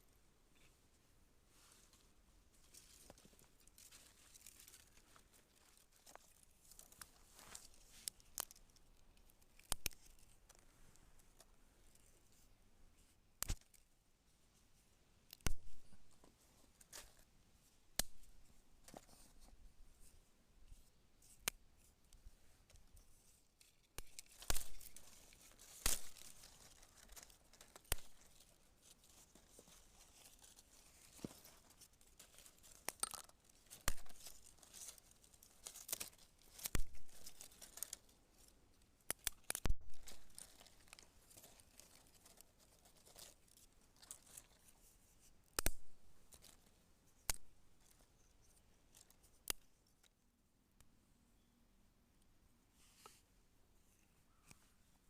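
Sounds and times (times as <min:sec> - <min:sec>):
faint steady hiss: 0:00.0 - 0:55.0
campfire crackling: 0:24.0 - 0:29.0.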